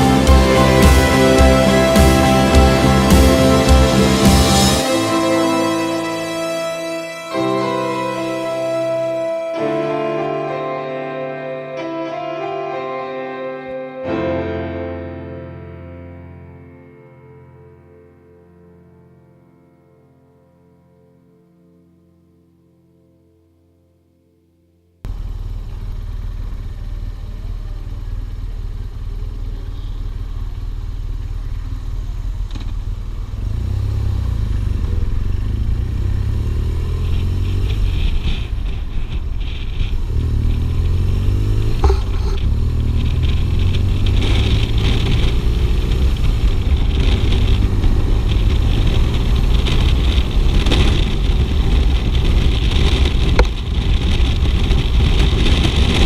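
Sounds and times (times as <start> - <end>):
motorcycle engine accelerating: 0.0 - 9.2, 25.1 - 56.0.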